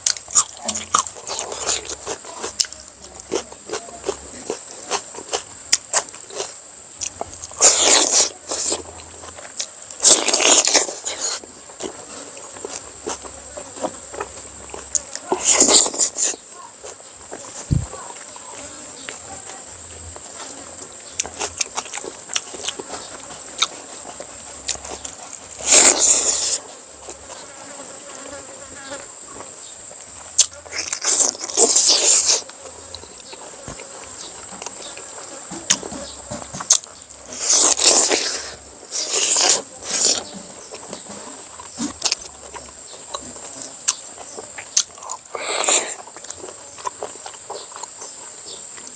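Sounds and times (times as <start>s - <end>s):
noisy eating bursts: 0.0s - 48.9s
chewing clicks: 20.9s - 27.3s, 36.6s - 48.9s.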